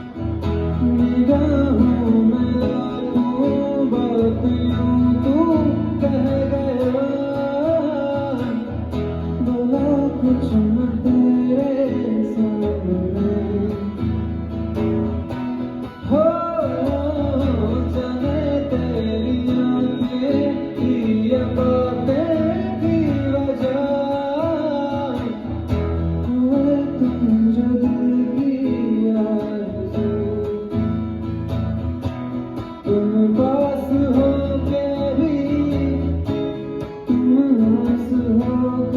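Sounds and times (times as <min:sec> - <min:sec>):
acoustic guitar strumming: 0:00.0 - 0:38.9.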